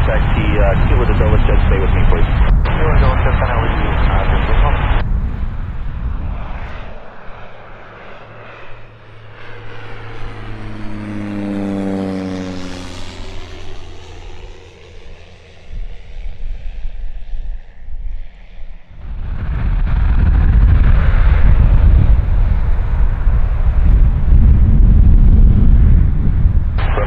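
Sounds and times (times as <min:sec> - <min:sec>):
propeller plane flying past: 0:05.0 - 0:19.6.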